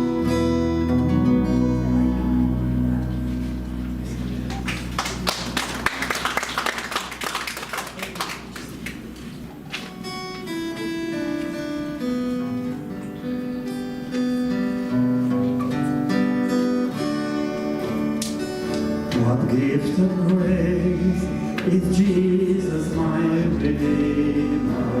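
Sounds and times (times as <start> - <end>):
acoustic guitar strumming: 0.0 - 5.4, 9.9 - 25.0.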